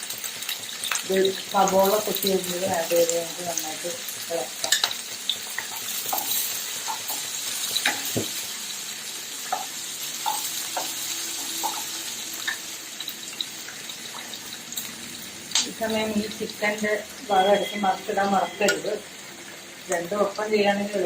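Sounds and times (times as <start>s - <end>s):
food sizzling in hot oil: 0.0s - 21.0s
spoon tapping pan: 4.6s - 5.0s, 5.6s - 8.4s, 9.5s - 12.6s.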